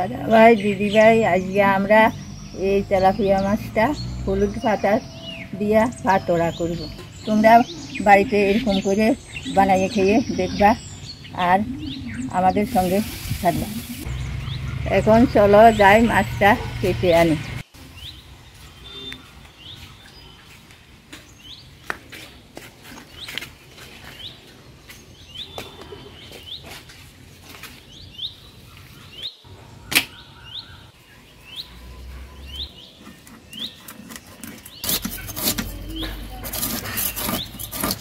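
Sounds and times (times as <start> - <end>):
bird chirping: 0.0 - 20.6, 27.9 - 38.0
fish scales being scraped: 34.0 - 38.0.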